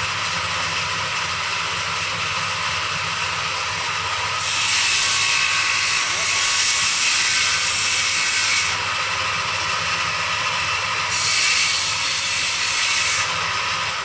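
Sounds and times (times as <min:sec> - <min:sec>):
electric power tool running: 0:00.0 - 0:14.0.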